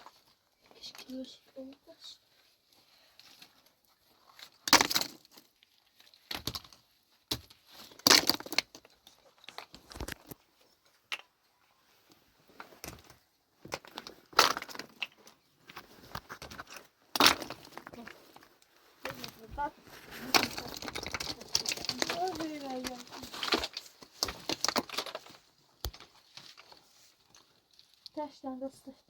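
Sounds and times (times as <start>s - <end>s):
hand tools digging stony ground: 12.8s - 26.7s.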